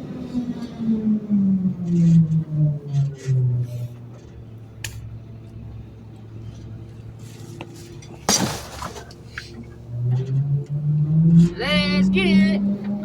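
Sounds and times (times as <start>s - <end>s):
garbage truck engine idling: 3.7s - 10.0s
trash clinking and knocking: 7.2s - 9.7s
crash of falling trash: 8.1s - 9.4s.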